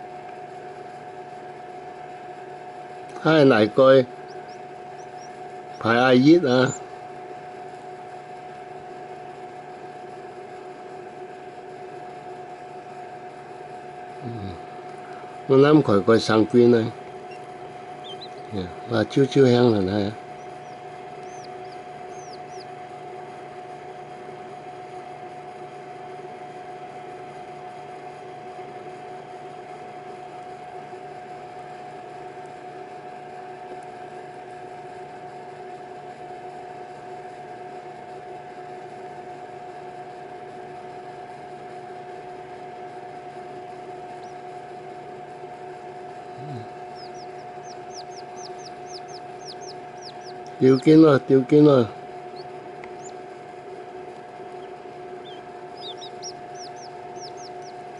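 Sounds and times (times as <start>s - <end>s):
steady hum: 0.0s - 57.9s
chicks peeping: 3.1s - 6.8s, 14.9s - 24.2s, 43.6s - 44.6s, 46.2s - 57.9s.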